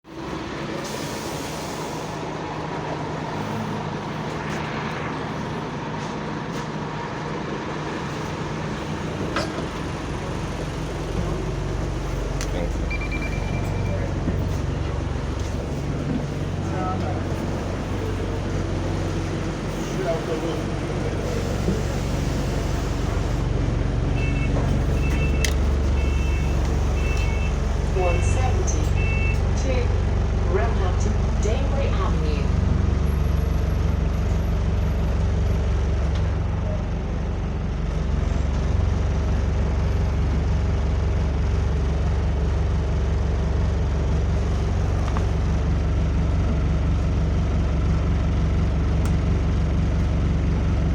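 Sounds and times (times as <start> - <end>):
bus diesel engine idling: 0.0 - 50.9
two-tone electronic beep: 12.9 - 14.0.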